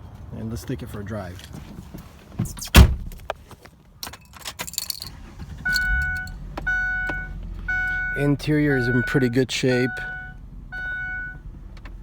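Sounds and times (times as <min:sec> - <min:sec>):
loud thump: 0:02.4 - 0:03.2
keys jangling: 0:04.0 - 0:06.4
car warning chime: 0:05.7 - 0:11.5.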